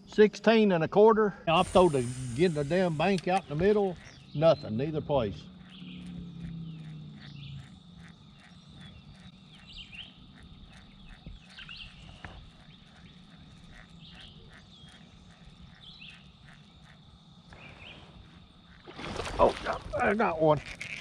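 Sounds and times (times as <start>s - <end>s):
bird chirps: 1.5s - 18.2s
fast even pulsing: 1.5s - 21.0s.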